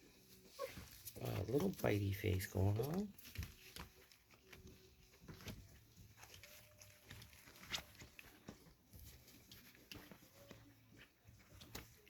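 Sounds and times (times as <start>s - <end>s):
puppies scuffling and tapping: 0.0s - 12.0s
puppy whines: 0.5s - 1.0s.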